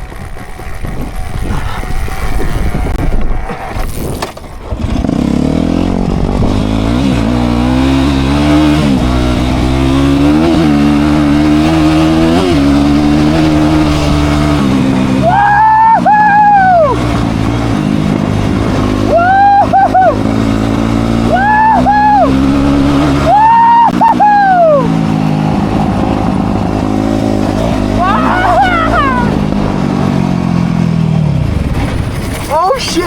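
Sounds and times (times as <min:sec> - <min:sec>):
dirt bike engine revving: 0:00.0 - 0:33.0
high wavering whoop: 0:15.2 - 0:17.0, 0:19.0 - 0:20.3, 0:21.3 - 0:25.0, 0:28.0 - 0:29.5.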